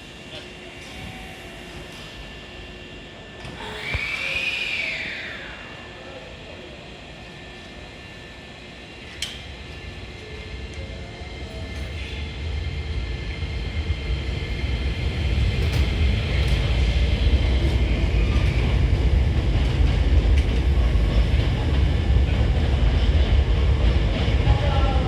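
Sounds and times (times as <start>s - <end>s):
electric train rumbling: 0.0s - 25.0s
high whine: 2.8s - 8.0s.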